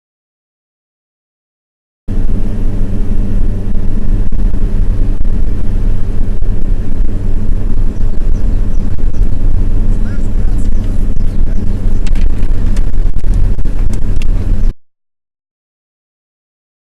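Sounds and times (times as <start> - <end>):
vehicle engine and road drone: 2.1 - 14.8.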